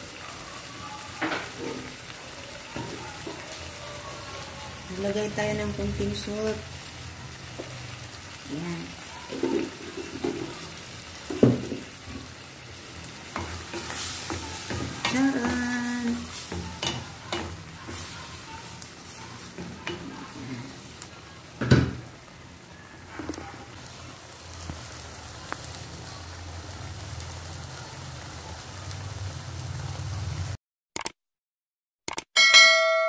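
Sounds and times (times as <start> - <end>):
food sizzling in a frying pan: 0.0 - 30.6
short clicks: 31.0 - 31.2, 32.1 - 32.3.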